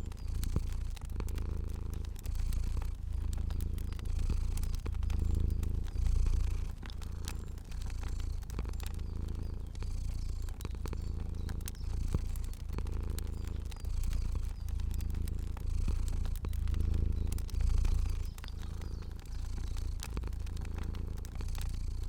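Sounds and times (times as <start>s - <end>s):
cat purring: 0.0s - 22.0s
fire crackling and popping: 0.0s - 22.0s.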